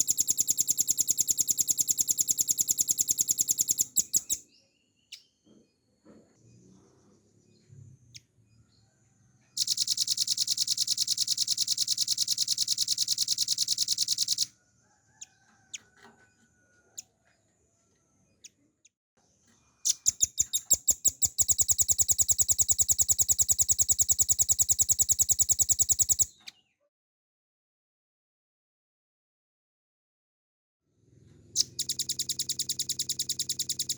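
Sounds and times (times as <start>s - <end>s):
bird singing rapid trills: 0.0s - 5.4s, 9.5s - 14.5s, 19.7s - 26.6s, 31.6s - 33.9s.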